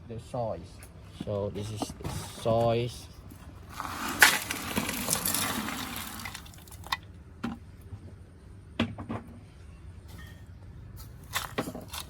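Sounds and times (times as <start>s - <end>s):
soil pouring: 1.6s - 7.0s, 11.0s - 12.0s.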